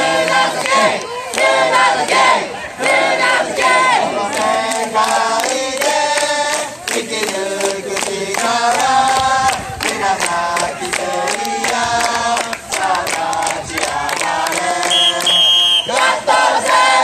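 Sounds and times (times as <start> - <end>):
crowd singing in unison: 0.0 - 17.0
sharp claps: 4.4 - 16.1.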